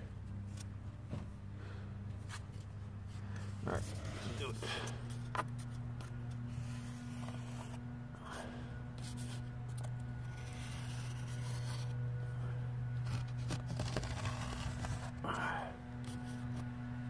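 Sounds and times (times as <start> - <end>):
low hum: 0.0 - 17.0
scratching against a surface: 2.2 - 12.0, 12.9 - 16.7.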